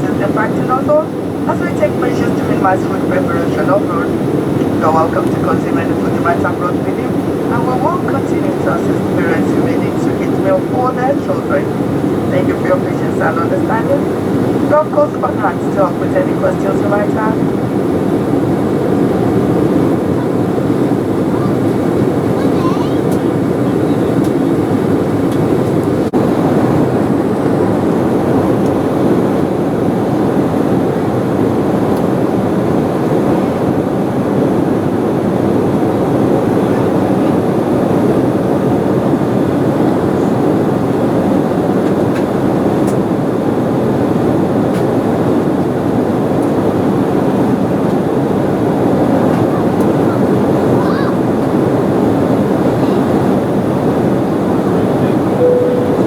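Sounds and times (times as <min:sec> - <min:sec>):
airliner cabin rumble: 0:00.0 - 0:33.7.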